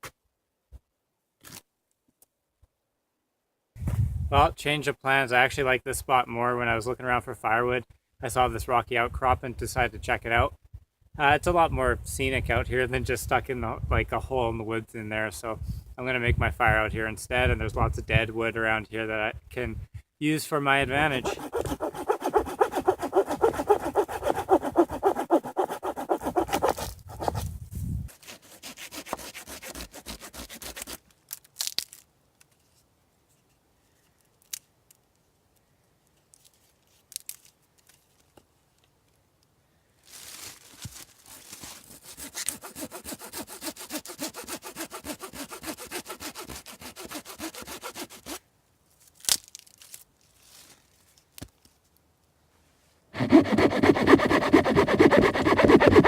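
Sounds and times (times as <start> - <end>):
hand saw cutting wood: 21.0 - 27.5, 28.1 - 31.0, 41.6 - 48.4, 53.2 - 56.0.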